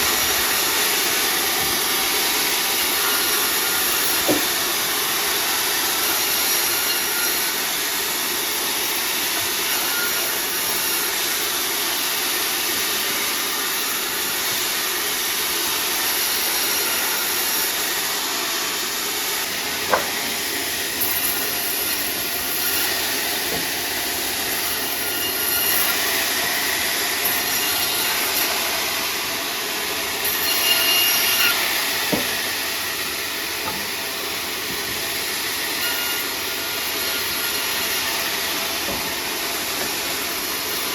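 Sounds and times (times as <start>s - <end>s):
sawmill saw cutting timber: 0.0s - 40.9s
sharp knocks: 19.9s - 20.2s.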